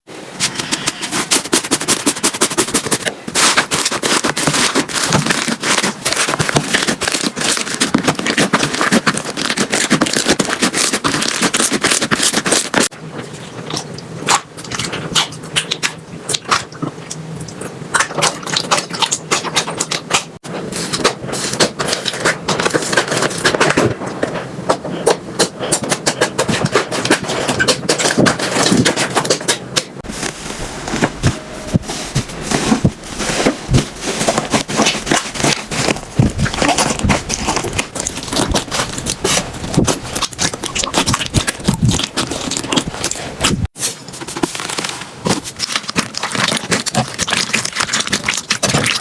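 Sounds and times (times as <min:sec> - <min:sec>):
slime crackling and popping: 0:00.7 - 0:12.9, 0:25.0 - 0:43.7, 0:44.4 - 0:49.0.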